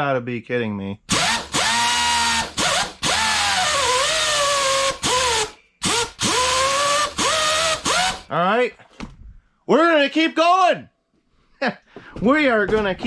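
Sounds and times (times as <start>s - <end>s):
pneumatic angle grinder whining: 1.1s - 8.3s.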